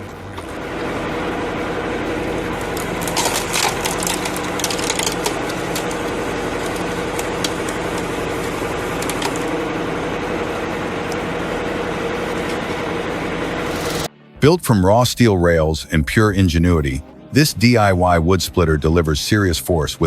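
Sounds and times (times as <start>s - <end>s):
log splitter engine running: 0.0s - 20.0s
logs cracking and splitting: 2.5s - 9.5s.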